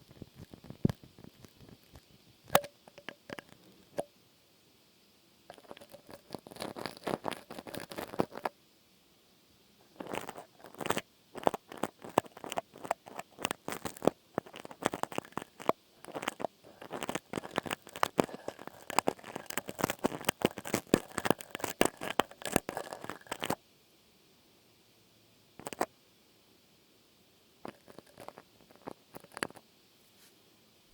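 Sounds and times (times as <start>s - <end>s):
crackling and crunching clicks: 0.0s - 4.1s, 5.5s - 8.5s, 9.8s - 23.6s, 25.6s - 25.9s, 27.6s - 29.6s.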